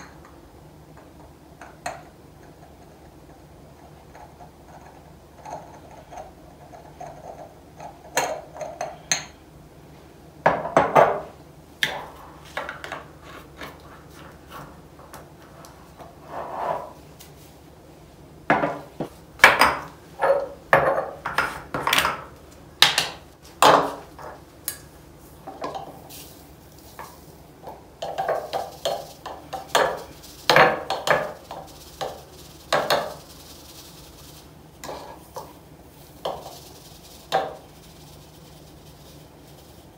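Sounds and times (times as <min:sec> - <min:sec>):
clinks and knocks of spice jars: 0:28.0 - 0:33.2.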